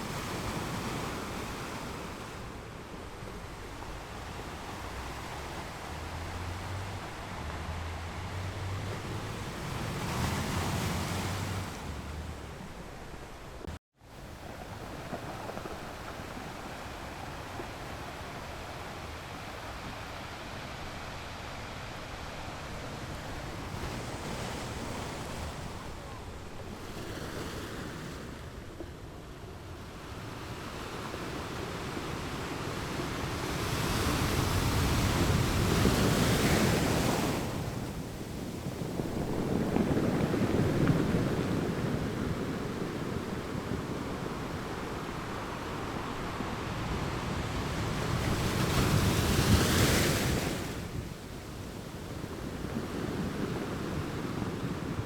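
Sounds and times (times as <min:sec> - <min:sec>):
ocean waves breaking on rocks: 0:00.0 - 0:13.6, 0:14.2 - 0:55.0
wind on microphone: 0:29.8 - 0:55.0.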